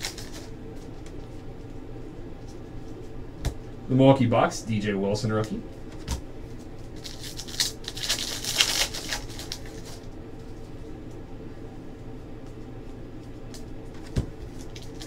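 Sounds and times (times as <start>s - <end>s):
trading cards rustling and clicking: 0.0s - 1.4s, 6.0s - 10.1s, 13.5s - 15.0s
steady low hum: 0.0s - 15.0s.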